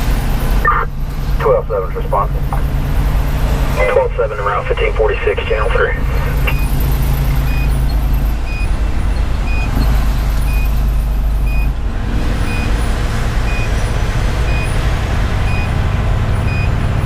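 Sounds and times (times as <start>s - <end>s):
diesel engine running: 0.0s - 17.0s
short electronic beeps: 3.8s - 7.9s.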